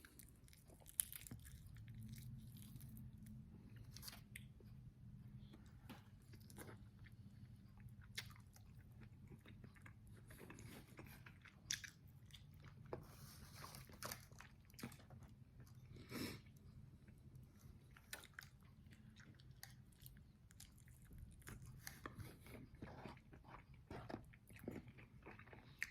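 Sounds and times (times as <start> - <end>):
crunchy chewing: 0.0 - 4.5, 17.6 - 25.9
low steady hum: 0.0 - 25.9.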